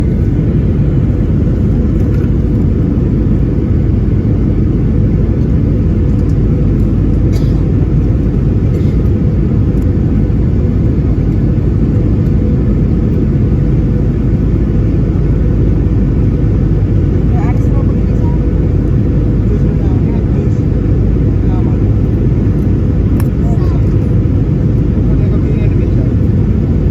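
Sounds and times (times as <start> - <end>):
airliner cabin rumble: 0.0 - 26.9.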